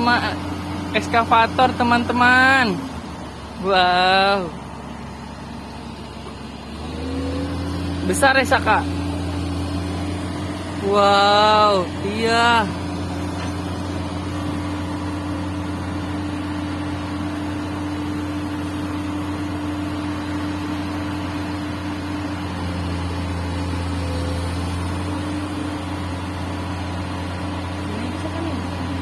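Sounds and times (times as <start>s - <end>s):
excavator diesel engine drone: 0.0s - 29.0s.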